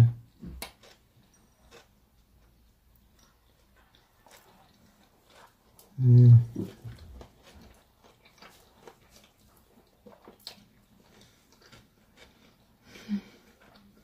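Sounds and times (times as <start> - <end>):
chewing with mouth smacks: 0.3 - 14.0
person humming: 6.0 - 6.7.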